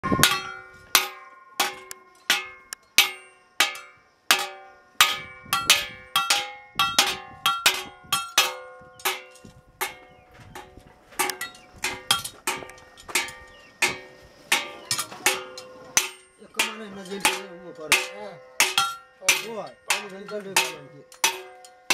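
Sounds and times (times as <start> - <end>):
hammer striking metal on anvil: 11.2 - 21.9.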